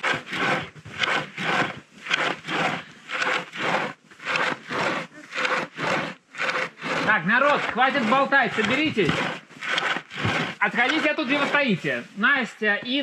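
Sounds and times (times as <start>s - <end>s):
hand saw cutting wood: 0.0s - 12.3s.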